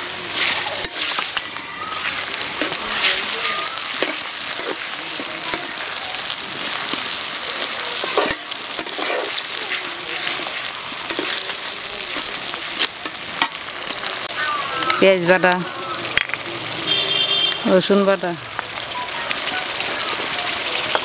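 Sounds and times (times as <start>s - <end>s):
onions sizzling in hot oil: 0.0s - 21.0s
metal spatula scraping a pan: 0.2s - 13.5s.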